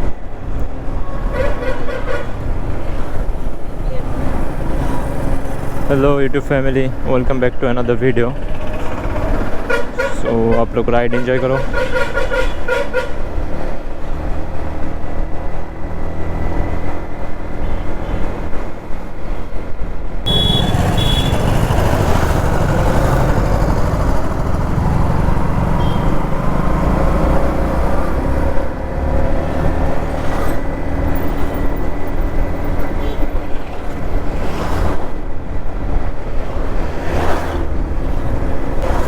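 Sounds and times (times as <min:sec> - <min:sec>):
wind and road noise: 0:00.0 - 0:39.0
motorcycle engine running: 0:20.3 - 0:26.7.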